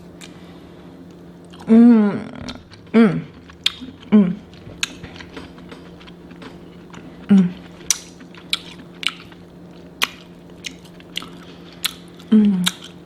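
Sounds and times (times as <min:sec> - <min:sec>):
person humming mm: 0:01.6 - 0:04.6, 0:07.2 - 0:07.8, 0:12.2 - 0:12.9
chewing with wet mouth clicks: 0:02.5 - 0:13.0.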